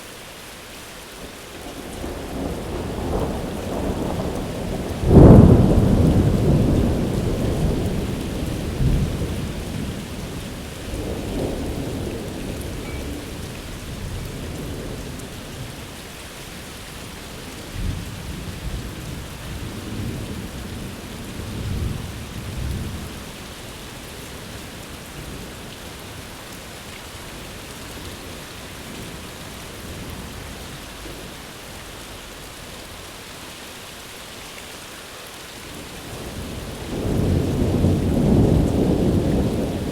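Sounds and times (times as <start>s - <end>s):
steady rain falling: 0.0s - 39.9s
thunder rumbling: 1.8s - 15.8s, 35.8s - 39.9s.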